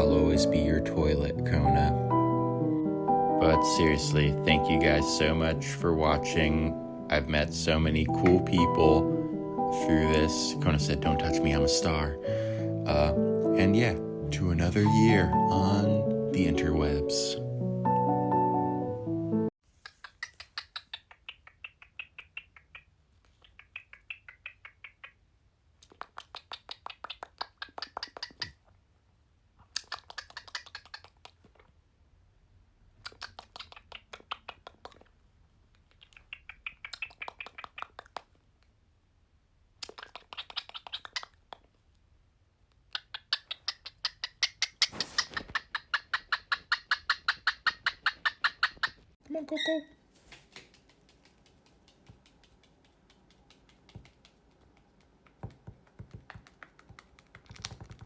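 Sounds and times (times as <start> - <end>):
bird clicking chatter: 19.8 - 25.2, 25.8 - 28.6, 29.8 - 31.4, 36.0 - 38.2, 39.8 - 41.4, 43.0 - 49.0, 50.5 - 58.0.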